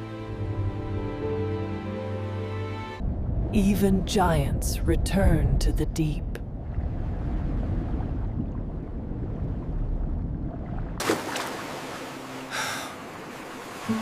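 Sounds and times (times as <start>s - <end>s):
deep low rumble: 3.0s - 11.0s
surf-like water hiss: 11.3s - 14.0s.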